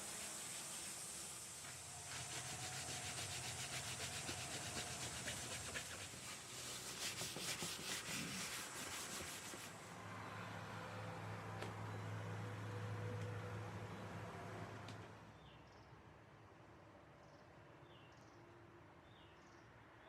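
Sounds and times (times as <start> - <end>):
steady hiss: 0.0 - 9.7.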